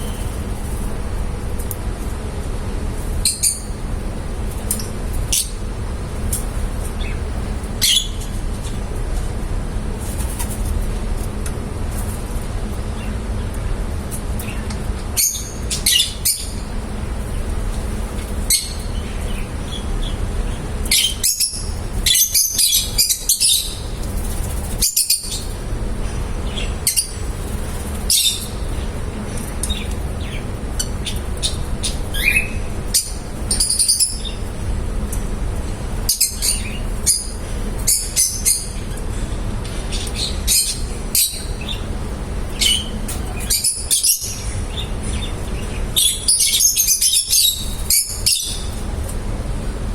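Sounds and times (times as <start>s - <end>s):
lovebirds chirping: 0.0s - 0.9s, 6.8s - 8.8s, 15.2s - 34.5s, 39.9s - 48.9s.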